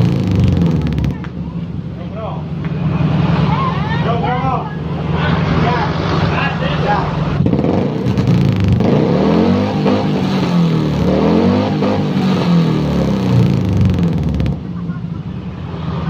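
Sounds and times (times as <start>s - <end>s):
car engine revving: 0.0s - 3.6s, 4.8s - 14.8s.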